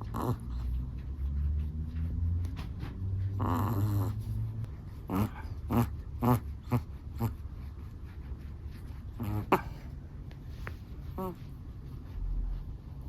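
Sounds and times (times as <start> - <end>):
dog snoring: 0.0 - 0.8, 3.3 - 7.4, 9.2 - 9.8.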